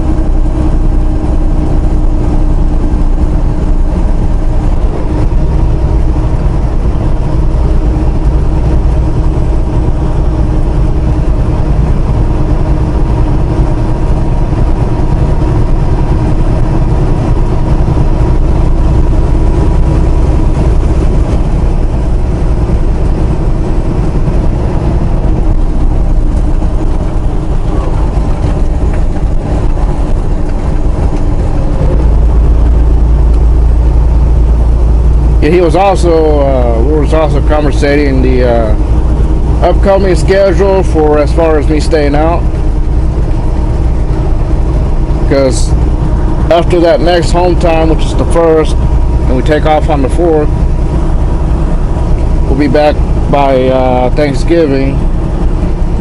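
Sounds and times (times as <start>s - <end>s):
road noise: 0.0s - 56.0s
truck engine drone: 0.0s - 56.0s.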